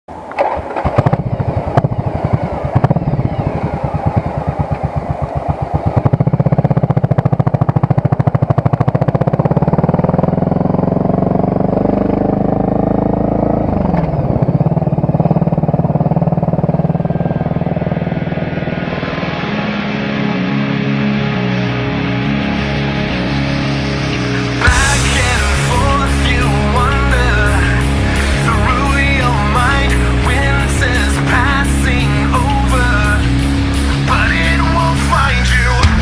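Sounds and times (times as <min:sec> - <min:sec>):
motorcycle engine: 0:00.1 - 0:36.0
engine knocks: 0:00.3 - 0:11.8.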